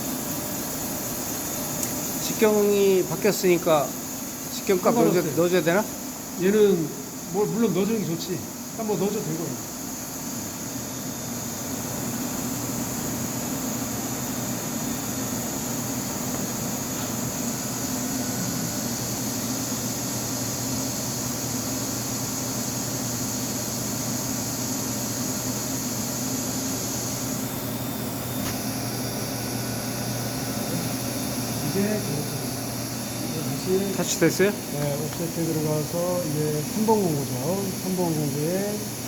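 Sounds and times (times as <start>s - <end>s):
machine high hiss: 0.0s - 39.0s
machine mechanical hum: 0.0s - 39.0s.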